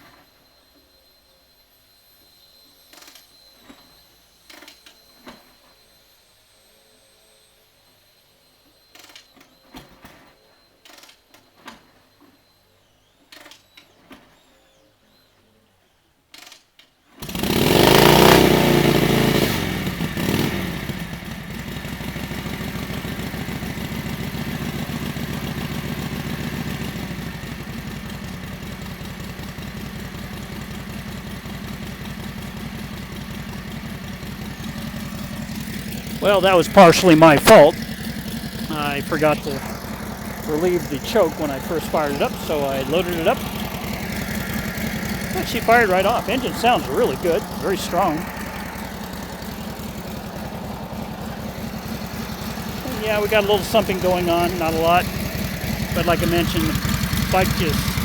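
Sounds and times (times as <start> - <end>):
motorcycle engine starting and idling: 17.2 - 58.0.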